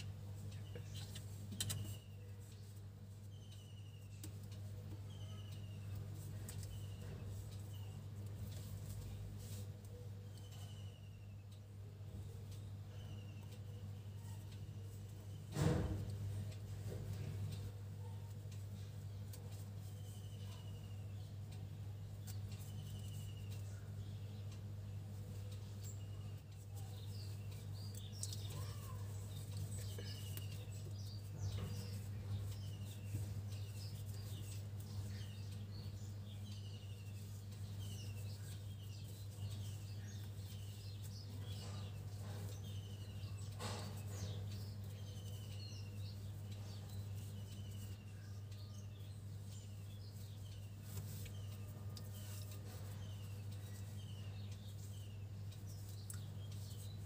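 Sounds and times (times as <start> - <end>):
birds chirping: 0.0 - 57.0
steady low hum: 0.0 - 57.0.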